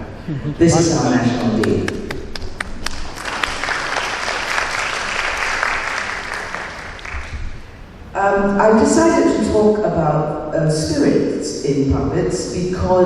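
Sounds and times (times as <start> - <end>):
audience applauding: 1.3 - 7.4.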